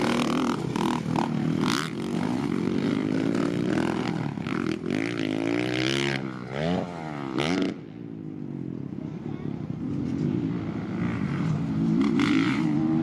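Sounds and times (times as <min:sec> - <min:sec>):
dirt bike engine revving: 0:00.0 - 0:07.8.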